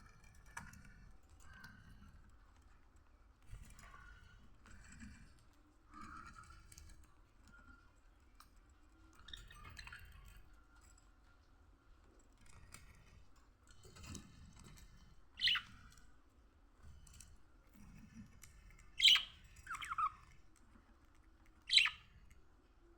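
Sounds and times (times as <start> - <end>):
budgerigar chirps: 15.4 - 15.6, 19.0 - 20.1, 21.7 - 22.0.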